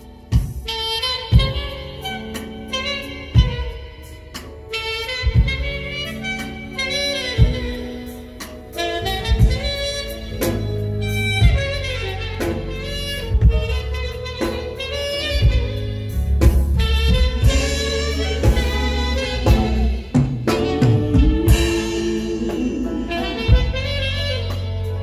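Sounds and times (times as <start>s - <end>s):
live jazz band playing: 0.0s - 25.0s
saxophone melody: 0.0s - 25.0s
strong drum hits: 16.4s - 24.1s.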